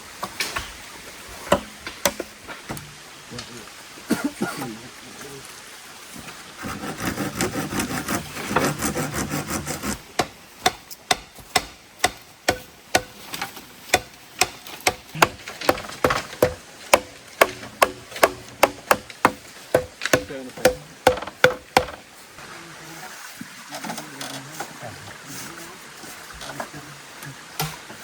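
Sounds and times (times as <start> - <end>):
hand tool striking wood: 1.5 - 2.9, 6.6 - 22.1.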